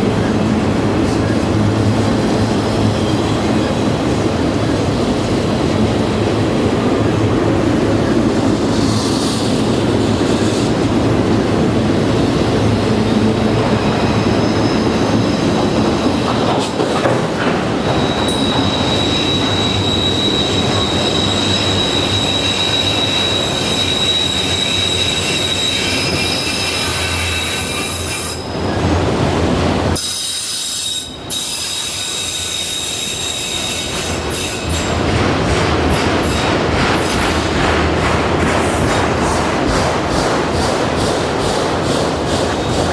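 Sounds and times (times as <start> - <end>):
train wheels rumbling on rails: 0.0 - 42.9
train wheel flanges squealing: 11.7 - 28.8, 30.0 - 35.1.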